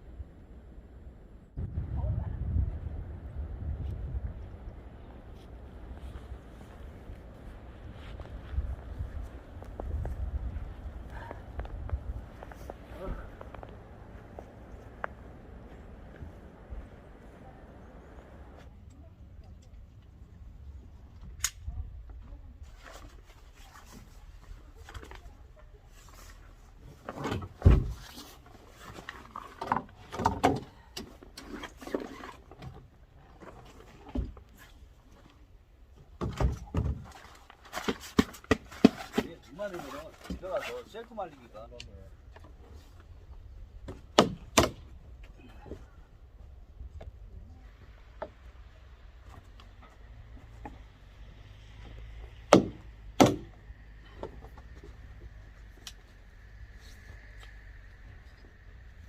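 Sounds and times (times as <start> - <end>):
sharp knocks: 52.5 - 53.5.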